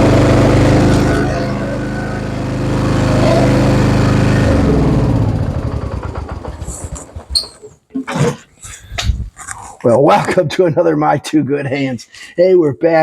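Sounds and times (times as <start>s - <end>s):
riding mower engine shutting off: 0.0s - 7.6s.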